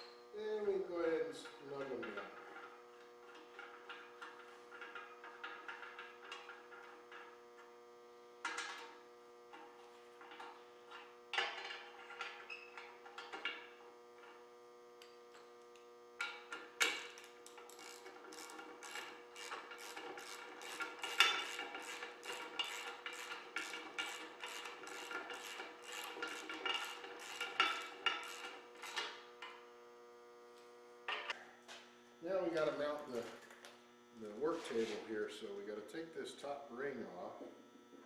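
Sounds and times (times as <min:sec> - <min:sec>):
ratchet wrench clicking: 0:17.6 - 0:28.5.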